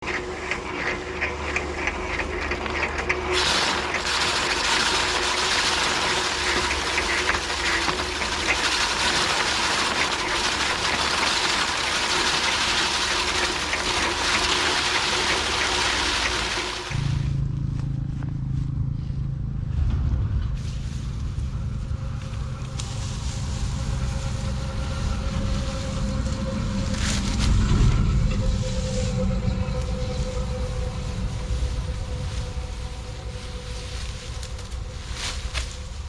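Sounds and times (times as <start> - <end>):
low hum: 0.0 - 36.0
thresher drum rattling whir: 0.0 - 36.0.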